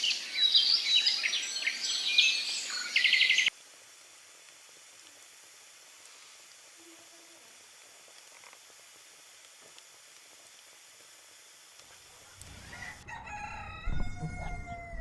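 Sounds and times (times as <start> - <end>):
faint steady hiss: 0.0 - 15.0
tiny ticks: 4.4 - 5.3, 7.8 - 12.6.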